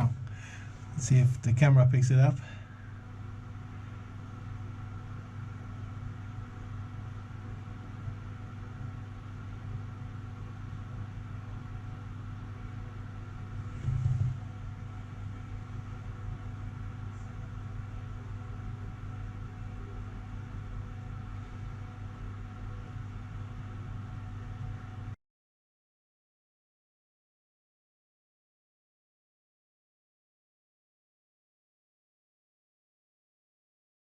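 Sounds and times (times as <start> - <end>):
dehumidifier fan humming: 0.0 - 25.2
short thump: 13.8 - 14.4.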